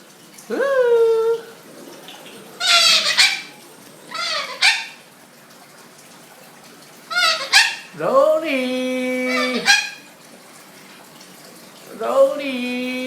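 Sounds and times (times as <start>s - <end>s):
cockatoo calling: 2.3s - 5.1s, 7.1s - 8.0s, 9.2s - 10.1s.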